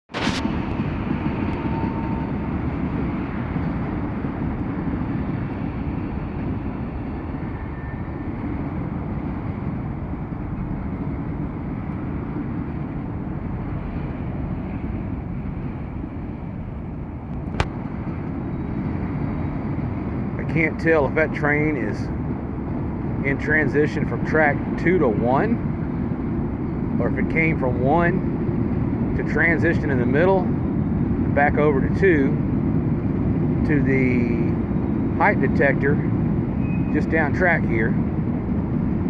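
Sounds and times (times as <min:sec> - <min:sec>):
train wheels rumbling on rails: 0:00.1 - 0:39.0.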